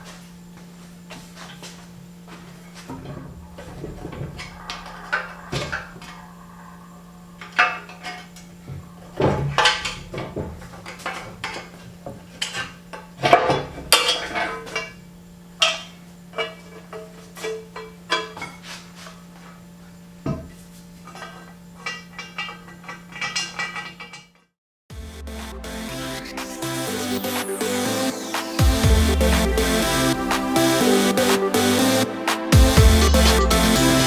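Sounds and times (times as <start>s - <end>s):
steady low hum: 0.0s - 24.2s, 24.9s - 34.0s
metal tools clinking and knocking: 2.3s - 19.6s, 20.2s - 24.4s.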